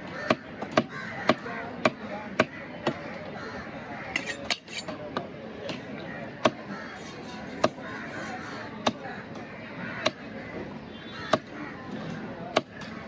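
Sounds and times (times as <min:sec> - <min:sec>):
knife chopping through fish: 0:06.4 - 0:09.0.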